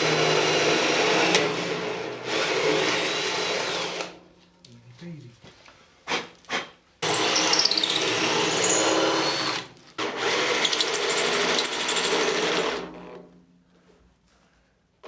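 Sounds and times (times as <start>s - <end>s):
power drill drilling metal: 0.0s - 4.1s, 7.0s - 12.9s.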